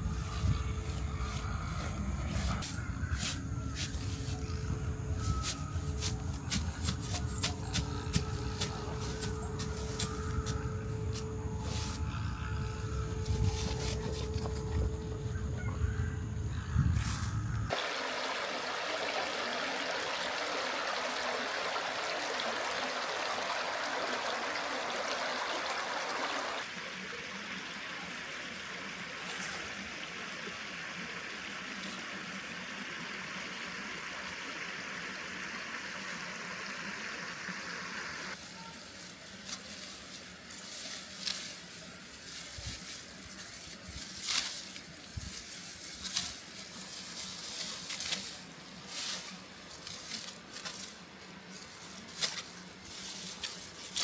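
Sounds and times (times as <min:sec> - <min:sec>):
running water: 0:17.7 - 0:54.0.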